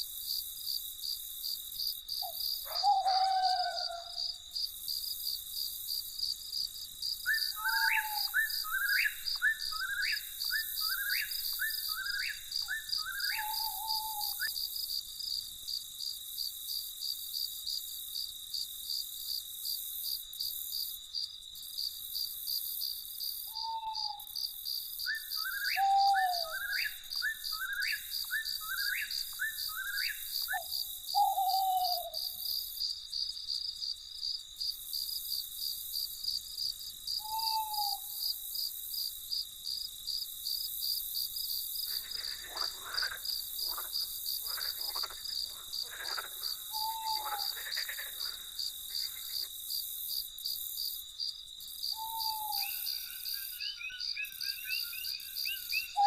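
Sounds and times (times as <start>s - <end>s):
crickets trilling: 0.0s - 56.0s
short falling bird calls: 41.9s - 49.5s.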